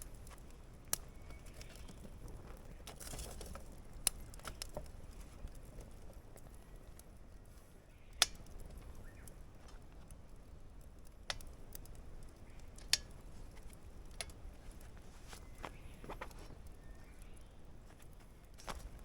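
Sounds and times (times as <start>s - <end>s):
wood campfire crackling: 0.0s - 19.0s
sharp fire pops: 8.2s - 9.9s, 10.8s - 14.9s.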